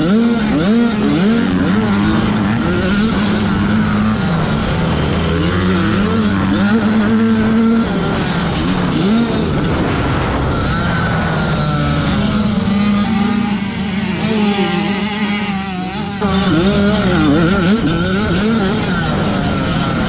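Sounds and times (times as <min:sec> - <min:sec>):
motocross bike engines revving: 0:13.0 - 0:18.9.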